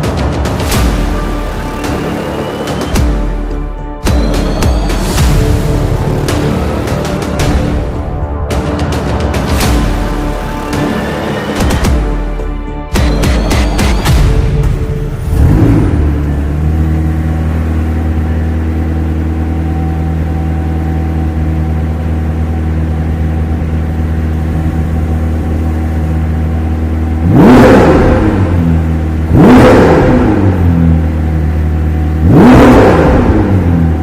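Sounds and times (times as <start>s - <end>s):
car engine idling and revving: 0.0s - 34.0s.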